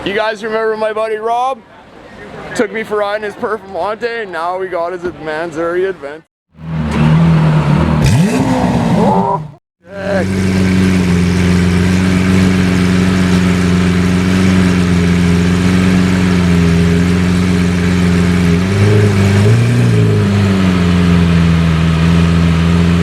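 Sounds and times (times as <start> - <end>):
car engine revving: 6.5 - 23.0
car engine idling: 9.8 - 23.0.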